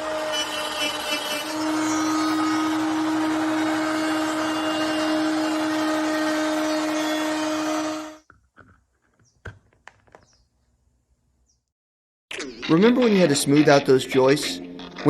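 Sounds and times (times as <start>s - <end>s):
power tool motor whining: 0.0s - 8.2s.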